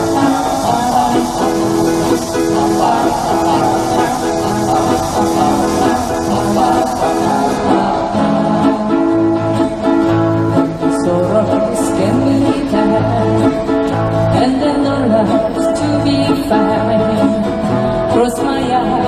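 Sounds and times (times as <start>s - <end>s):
repeating bass line: 0.0s - 10.6s
strummed acoustic guitars: 0.0s - 19.0s.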